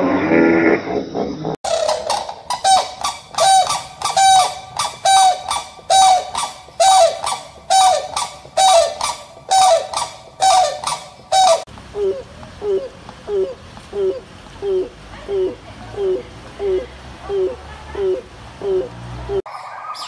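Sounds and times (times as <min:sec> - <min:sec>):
bird honking: 0:01.7 - 0:11.7.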